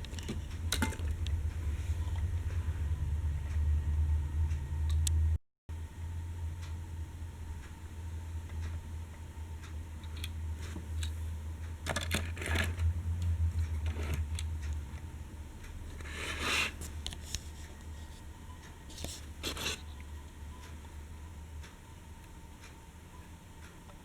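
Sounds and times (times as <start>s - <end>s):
steady low hum: 0.0s - 24.0s
toy train scraping on surface: 16.0s - 16.9s.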